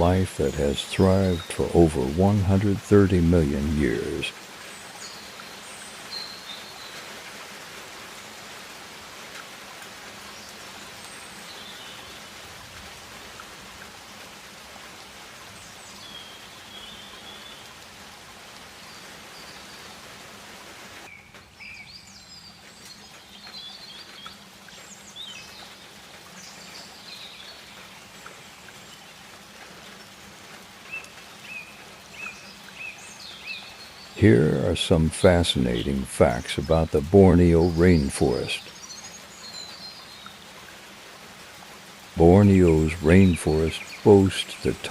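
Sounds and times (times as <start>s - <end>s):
bird calls and chirps: 0.0s - 2.2s, 3.9s - 7.1s, 10.2s - 12.4s, 15.5s - 17.7s, 21.1s - 29.2s, 30.8s - 40.6s, 42.2s - 44.9s
steady hiss: 0.0s - 21.1s, 22.0s - 44.9s.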